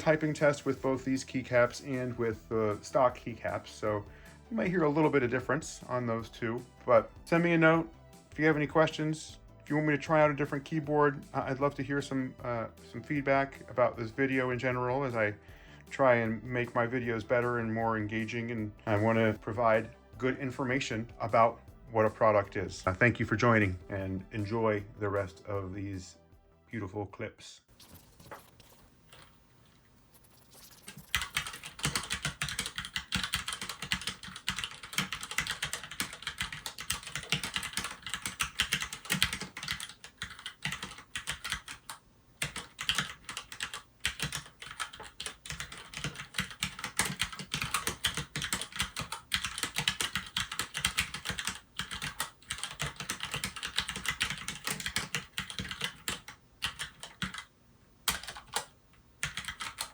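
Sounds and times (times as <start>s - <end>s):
mechanical keyboard typing: 30.2s - 59.9s.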